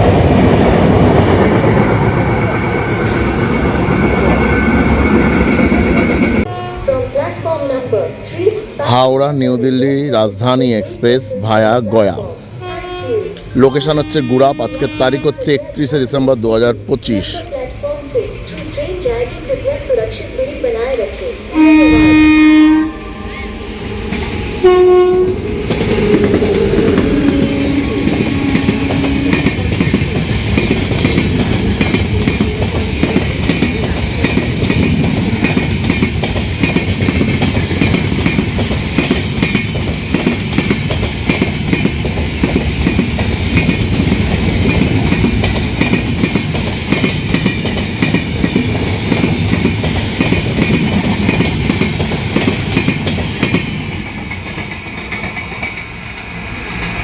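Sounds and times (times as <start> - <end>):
train rumble and wheel clatter: 0.0 - 57.0
train horn: 12.6 - 15.6, 21.5 - 29.5.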